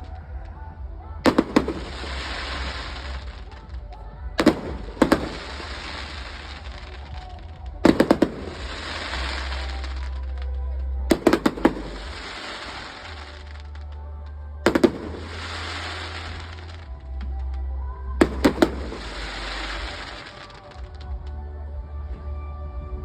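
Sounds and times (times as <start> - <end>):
low rumble: 0.0 - 23.0
fireworks bangs: 1.2 - 10.5, 11.1 - 14.0, 14.7 - 17.5, 18.2 - 21.1.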